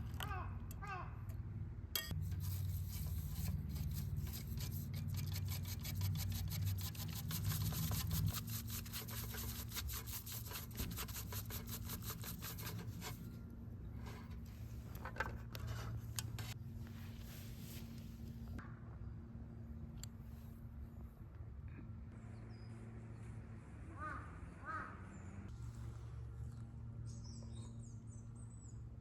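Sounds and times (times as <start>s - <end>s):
rapid scraping strokes: 2.1s - 13.4s.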